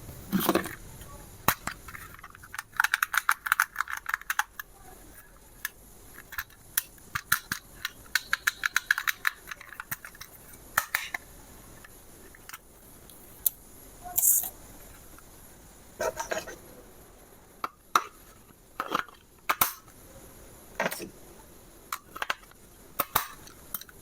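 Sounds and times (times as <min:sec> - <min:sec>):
small hard objects clicking and rattling: 0:00.3 - 0:13.6.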